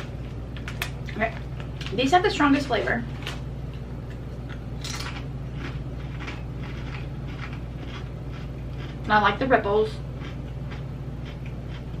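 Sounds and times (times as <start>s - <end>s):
steady low hum: 0.0s - 12.0s
potato chip crunching: 4.1s - 9.5s, 10.2s - 12.0s.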